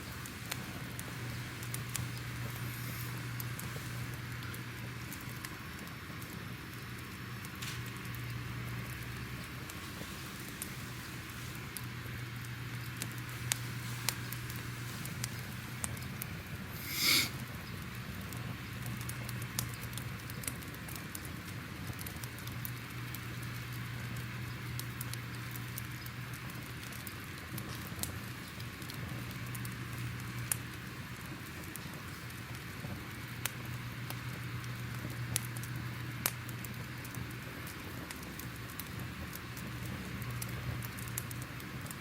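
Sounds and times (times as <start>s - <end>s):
steady low hum: 0.0s - 20.8s
fire crackling and popping: 0.0s - 42.0s.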